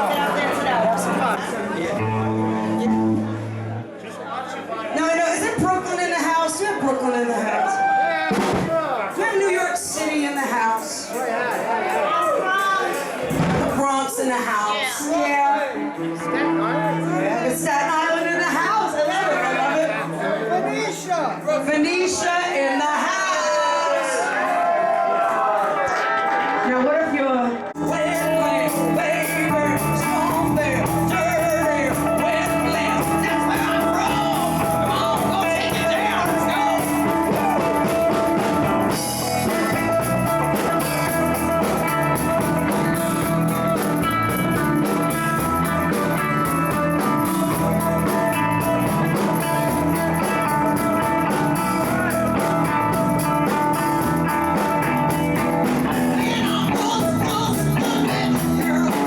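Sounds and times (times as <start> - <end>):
live blues rock band: 0.0 - 3.9, 27.8 - 59.0
person singing: 27.8 - 59.0.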